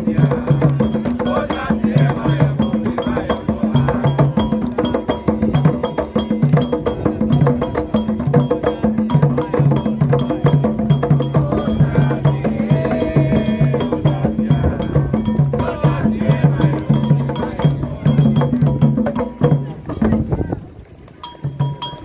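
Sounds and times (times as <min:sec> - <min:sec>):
sharp high percussion strokes: 0:00.0 - 0:20.1
low hand drums: 0:00.0 - 0:22.0.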